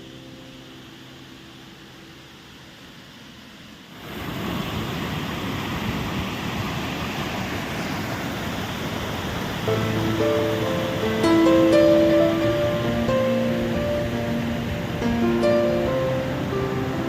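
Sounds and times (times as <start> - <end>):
soft music: 0.0 - 3.1, 9.6 - 17.0
waterfall rushing: 0.0 - 17.0.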